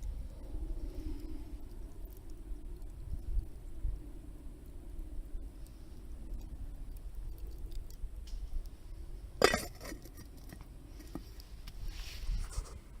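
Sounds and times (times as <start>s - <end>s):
steady low rumble: 0.0s - 13.0s
faint ticks: 5.3s - 8.8s.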